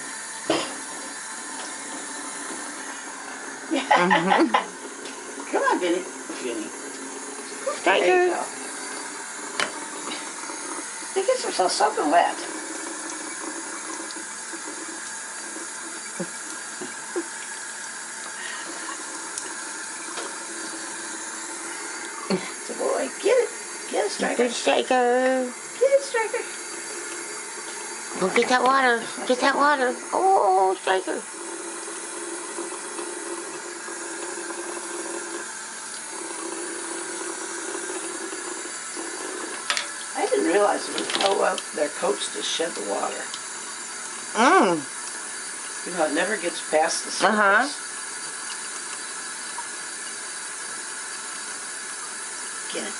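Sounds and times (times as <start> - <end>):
tap running into a sink: 0.0 - 29.8, 31.3 - 44.3, 44.9 - 52.8.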